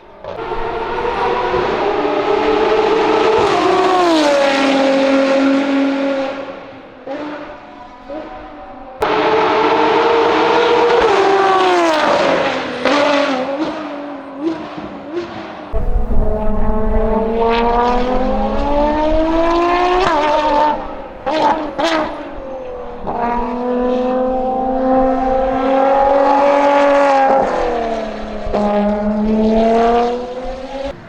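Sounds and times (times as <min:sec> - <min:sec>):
race car engine at full throttle: 0:00.0 - 0:31.0
shrill rising and falling notes: 0:15.8 - 0:21.3.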